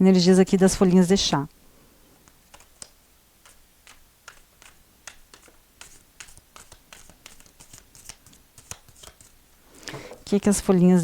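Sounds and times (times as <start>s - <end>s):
playing cards clicking: 2.2s - 9.4s
cards rustling: 2.2s - 10.8s.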